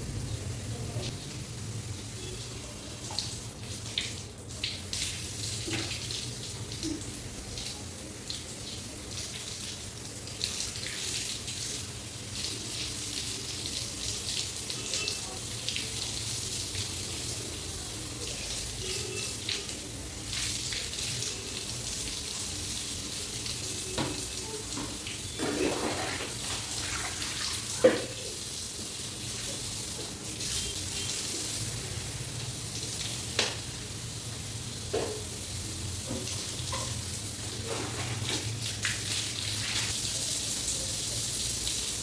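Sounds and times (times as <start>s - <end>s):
tap water splashing on hair: 3.0s - 7.0s, 23.8s - 28.3s, 33.3s - 33.7s, 34.9s - 35.3s, 36.0s - 37.0s, 37.6s - 40.0s.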